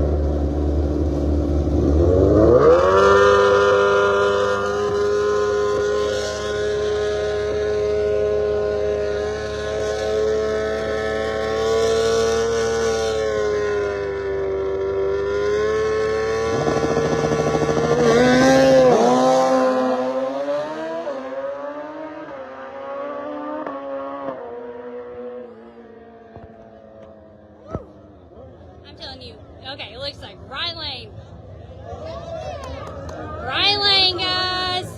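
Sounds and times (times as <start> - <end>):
drag racing engines revving: 0.0 - 27.6.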